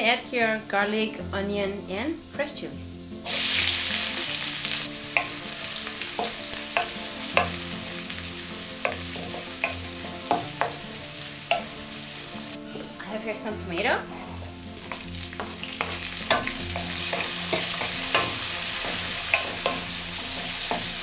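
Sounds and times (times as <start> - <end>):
vegetables sizzling in hot oil: 0.0 - 21.0
wooden spoon scraping metal pan: 8.8 - 21.0.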